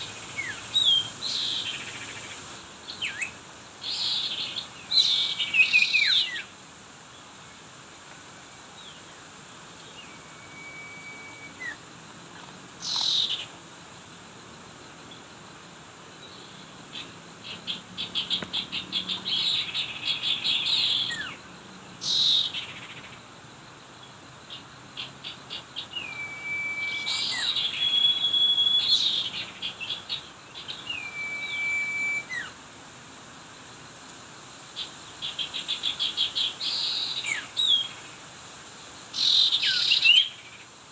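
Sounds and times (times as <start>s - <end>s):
birds chattering trills: 8.7s - 13.6s, 16.1s - 23.2s, 24.0s - 32.6s
short down-sweeping bird calls: 9.7s - 11.8s, 25.0s - 32.6s
bird whistled note: 10.0s - 11.8s, 26.0s - 29.2s, 30.9s - 32.5s.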